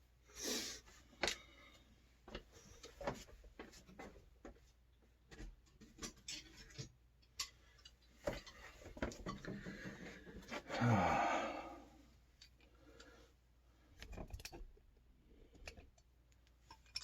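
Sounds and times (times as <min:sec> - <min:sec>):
metal threads clicking and scraping: 0:15.6 - 0:17.0.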